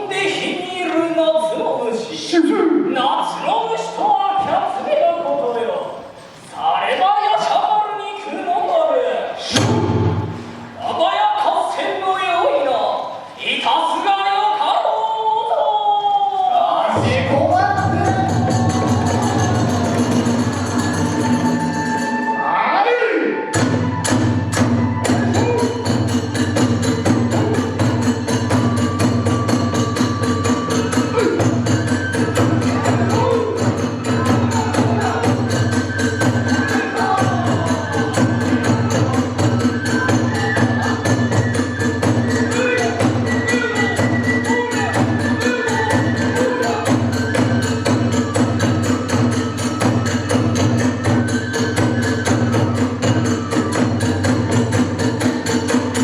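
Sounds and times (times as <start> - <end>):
drums beating: 9.4 - 11.2, 16.9 - 22.6, 23.4 - 56.0
bamboo flute melody: 15.5 - 56.0.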